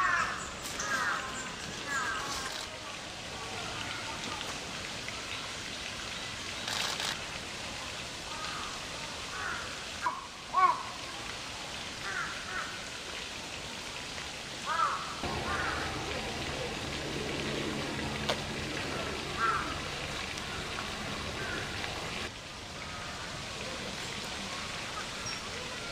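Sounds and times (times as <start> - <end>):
outdoor hiss: 0.0 - 25.9
low hum: 15.2 - 22.3.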